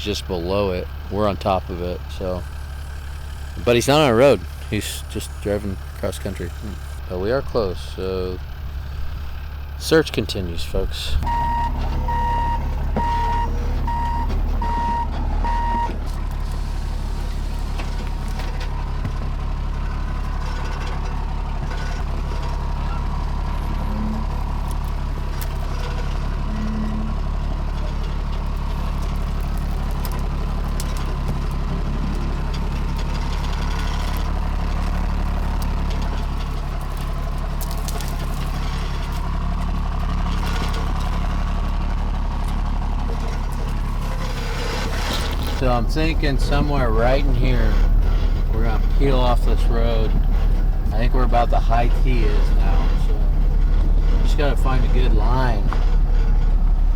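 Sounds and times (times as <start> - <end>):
diesel engine running: 0.0 - 56.9
beeping alarm: 11.2 - 18.9.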